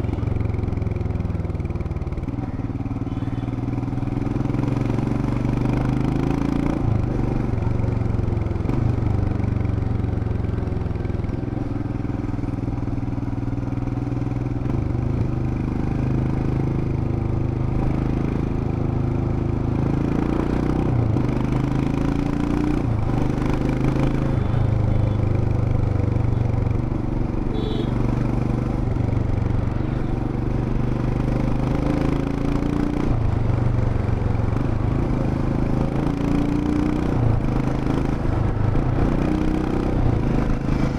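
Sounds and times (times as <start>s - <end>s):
motorcycle engine revving: 14.6s - 40.9s.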